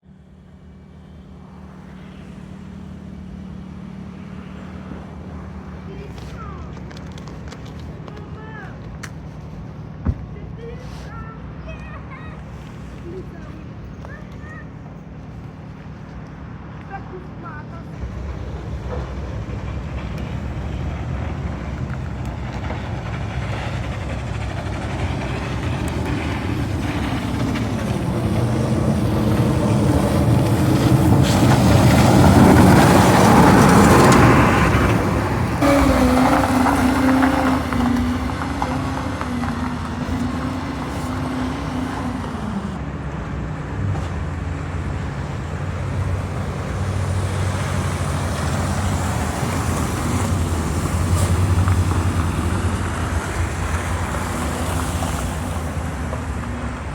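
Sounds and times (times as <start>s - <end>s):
road traffic rumble: 0.0s - 56.9s
vehicle passing close: 0.1s - 56.9s
humming engine tone: 12.6s - 45.1s.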